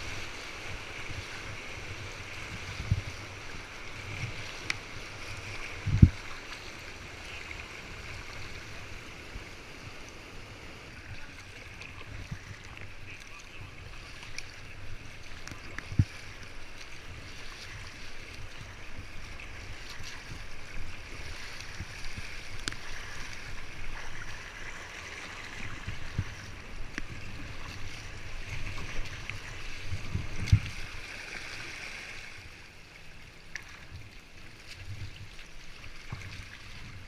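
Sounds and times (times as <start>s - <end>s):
river water rushing: 0.0s - 37.0s
water splashes: 0.0s - 37.0s.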